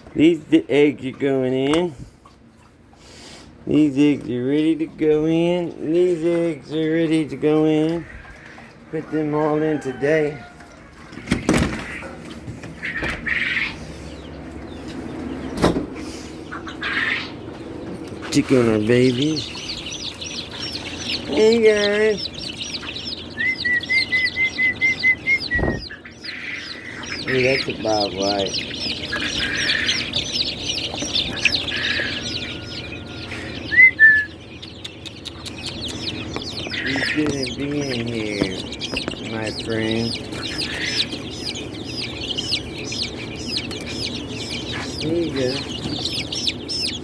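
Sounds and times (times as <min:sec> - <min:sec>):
chicks peeping: 0:00.0 - 0:47.0
bird chirp: 0:11.0 - 0:47.0
steady low hum: 0:11.7 - 0:47.0
clear whistled notes: 0:23.4 - 0:25.8, 0:33.7 - 0:34.3.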